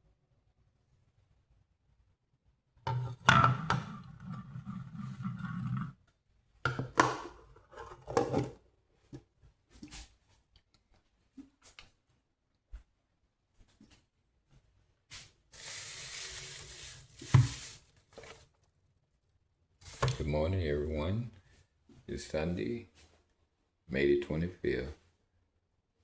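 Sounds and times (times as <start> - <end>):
pot lids clanking: 2.9 - 5.9
metal pots scraping and clattering: 2.9 - 6.0, 6.7 - 8.6.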